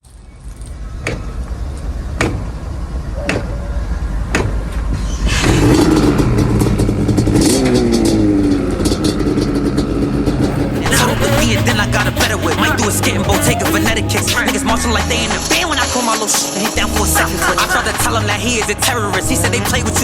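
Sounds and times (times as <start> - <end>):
engine revving: 5.3 - 16.2.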